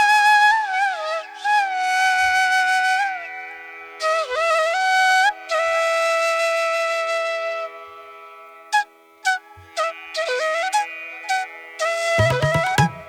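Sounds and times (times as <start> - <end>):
flute playing slow melody: 8.8 - 13.0.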